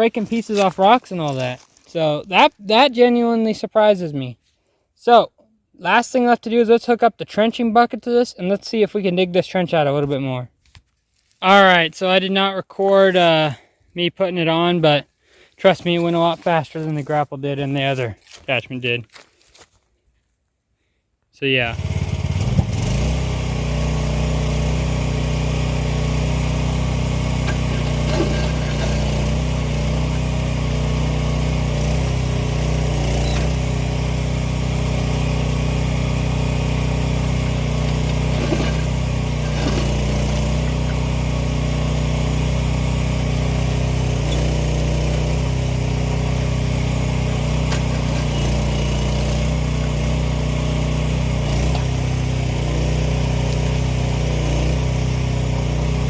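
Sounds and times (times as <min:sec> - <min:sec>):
excavator engine running: 0:21.7 - 0:56.0.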